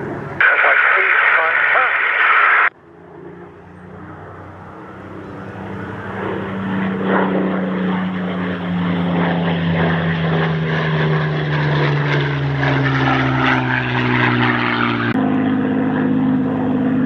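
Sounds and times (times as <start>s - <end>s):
propeller aircraft engines drone: 0.0s - 17.0s
radio voice: 0.4s - 2.7s.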